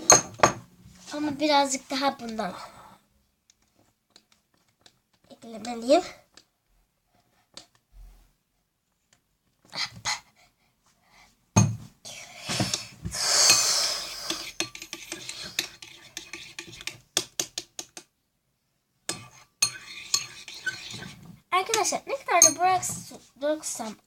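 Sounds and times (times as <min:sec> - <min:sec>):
utensil scraping a bowl: 0:12.5 - 0:17.9, 0:19.1 - 0:23.2.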